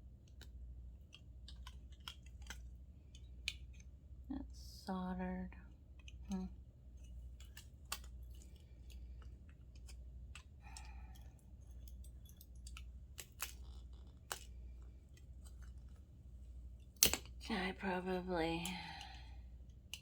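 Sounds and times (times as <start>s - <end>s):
tools and metal parts clicking: 11.1s - 14.5s.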